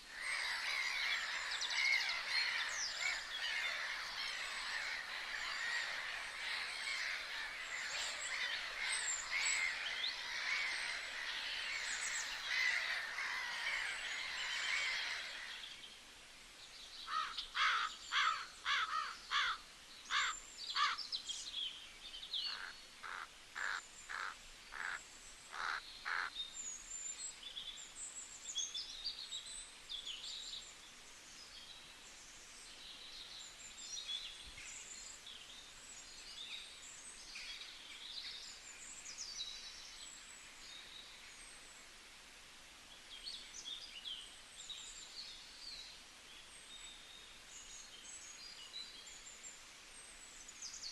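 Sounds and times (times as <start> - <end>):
small birds chirping: 0.0 - 15.8
faint background hiss: 0.0 - 50.9
bird repeated loud calls: 0.1 - 15.6, 22.5 - 26.3.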